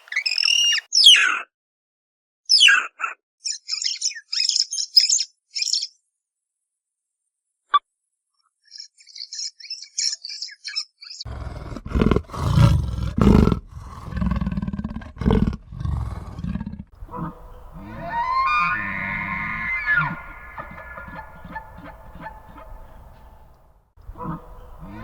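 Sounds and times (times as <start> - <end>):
short high chirping calls: 0.0 - 1.5, 2.5 - 6.0, 17.2 - 23.5
big cat roaring: 11.3 - 23.1, 24.0 - 25.0
high gliding cry: 17.0 - 25.0.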